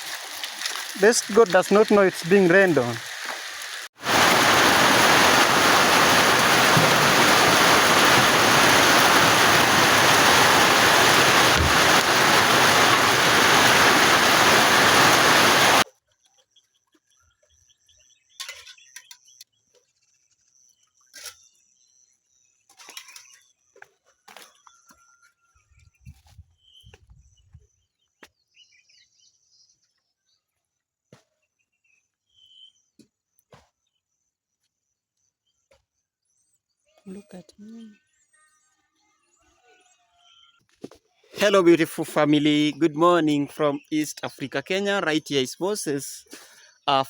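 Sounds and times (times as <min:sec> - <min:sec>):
heavy rain pouring: 0:00.0 - 0:15.8
faint bird chirps: 0:31.5 - 0:40.6.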